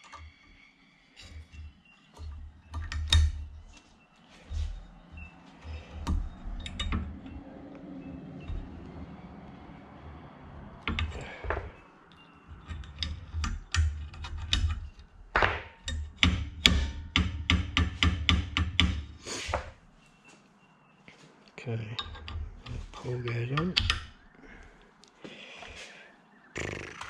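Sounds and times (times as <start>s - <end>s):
hammer tapping on metal: 15.4s - 19.6s.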